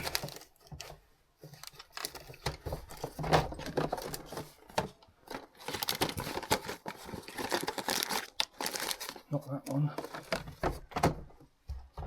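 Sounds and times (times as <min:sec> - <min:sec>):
rummaging through objects on shelf: 0:00.0 - 0:12.0.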